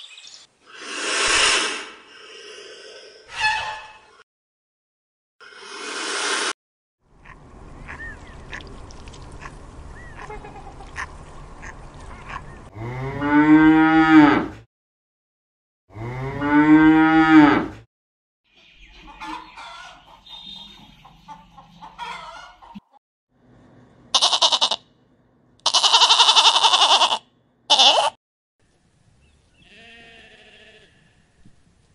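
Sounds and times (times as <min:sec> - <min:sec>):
goat bleating: 0:24.1 - 0:24.8, 0:25.6 - 0:28.2, 0:29.6 - 0:31.2
calf mooing: 0:24.2 - 0:24.8, 0:25.6 - 0:28.1, 0:29.6 - 0:31.0.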